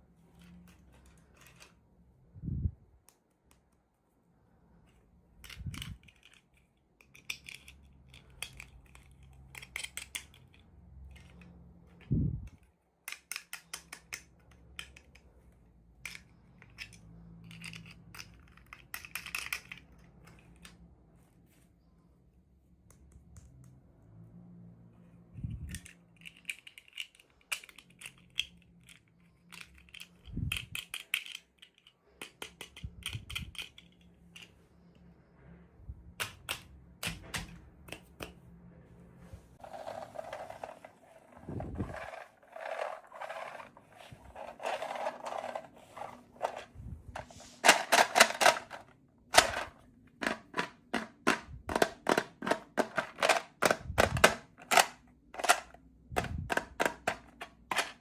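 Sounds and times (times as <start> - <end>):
plastic toys clicking and snapping: 5.3 - 20.8, 25.4 - 34.6, 36.2 - 38.4, 39.7 - 58.0.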